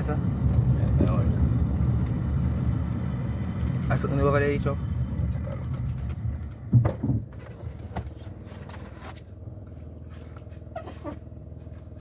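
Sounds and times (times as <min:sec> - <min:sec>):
car engine running: 0:00.0 - 0:06.2.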